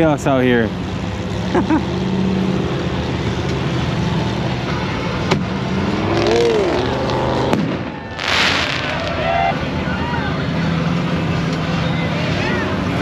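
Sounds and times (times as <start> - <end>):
race vehicle engines revving: 0.0 - 13.0
sharp crack: 6.4 - 9.5.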